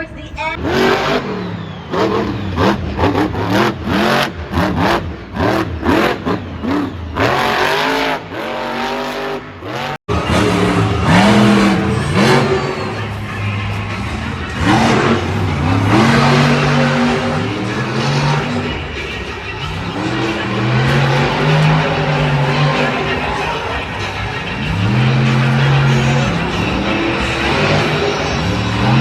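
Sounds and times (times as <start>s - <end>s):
monster truck engine revving: 0.5s - 29.0s.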